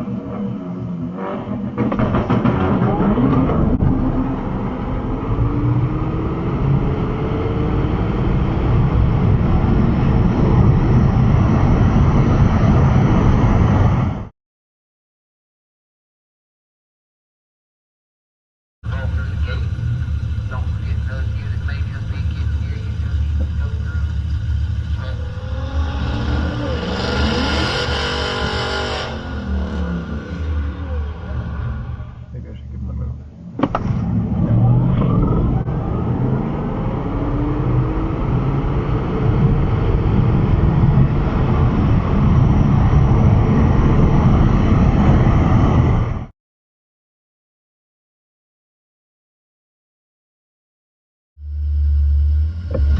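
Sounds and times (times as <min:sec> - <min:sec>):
car accelerating with rising whine: 0:00.0 - 0:14.3, 0:18.9 - 0:46.3, 0:51.4 - 0:52.9
road and wind noise: 0:00.0 - 0:14.3, 0:18.8 - 0:46.3, 0:51.4 - 0:52.9
steady low rumble: 0:01.8 - 0:14.3, 0:18.8 - 0:46.3, 0:51.4 - 0:52.9.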